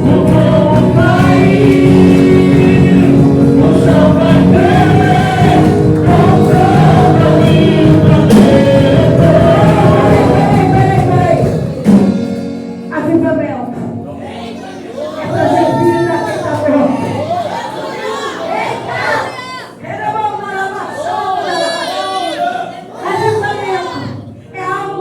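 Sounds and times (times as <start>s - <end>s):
choir singing gospel song: 0.0s - 12.7s, 14.1s - 25.0s
band accompaniment: 0.0s - 18.4s.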